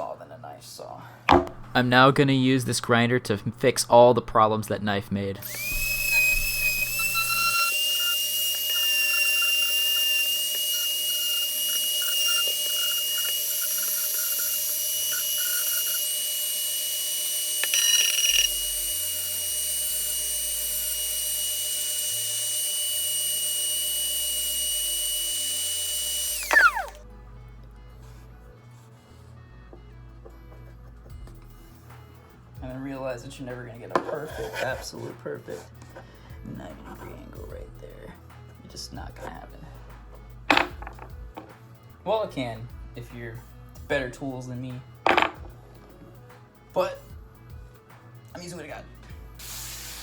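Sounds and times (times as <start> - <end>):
power grinder whining: 5.4 - 27.0.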